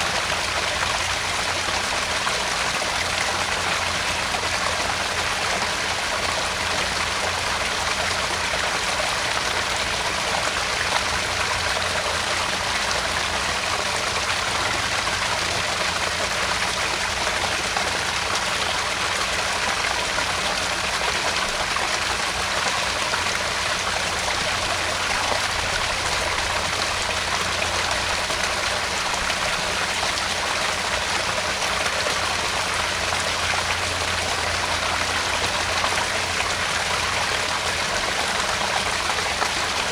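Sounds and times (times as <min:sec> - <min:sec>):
water splashing into pond: 0:00.0 - 0:39.9.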